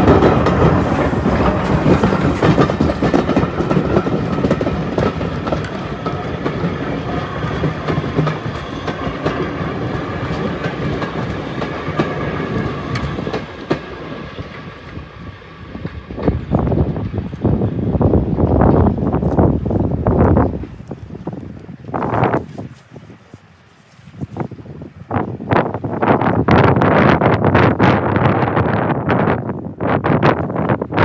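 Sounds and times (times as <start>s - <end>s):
train wheels clattering over rails: 0.0s - 21.0s.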